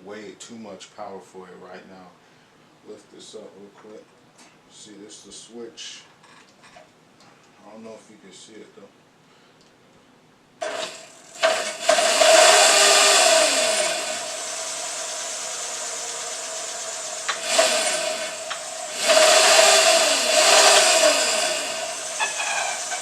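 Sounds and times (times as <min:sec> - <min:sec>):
electric motor whining: 0:10.6 - 0:23.0.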